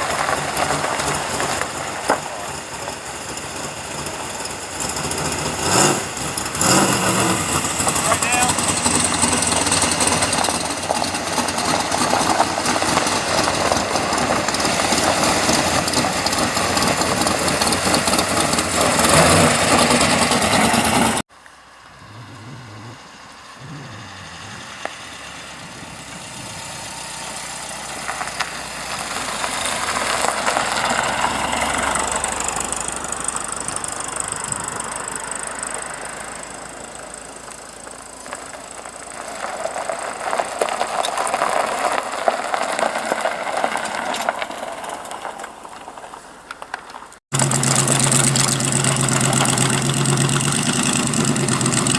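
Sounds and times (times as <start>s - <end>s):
car engines running: 0.0s - 51.9s
car passing by: 6.6s - 37.3s.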